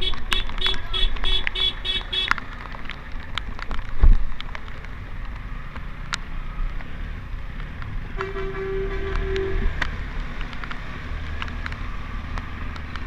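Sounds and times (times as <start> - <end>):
raindrops ticking on microphone: 0.0 - 13.0
wind and motorcycle road rumble: 0.0 - 13.0
steady horn tone: 8.2 - 9.8.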